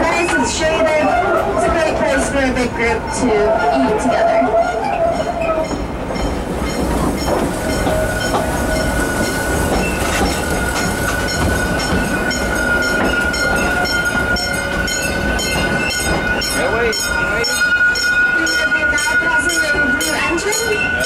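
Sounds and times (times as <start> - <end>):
train rumbling on track: 0.0 - 21.0
wheels clicking over rails: 4.7 - 17.1.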